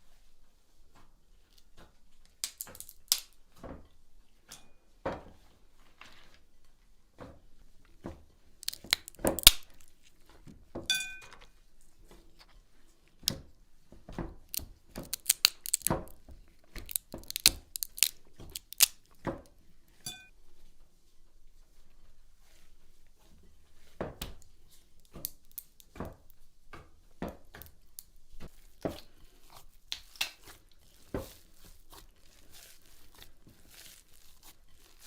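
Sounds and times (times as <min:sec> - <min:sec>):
knocks and clicks of cooking utensils: 0:02.3 - 0:05.4.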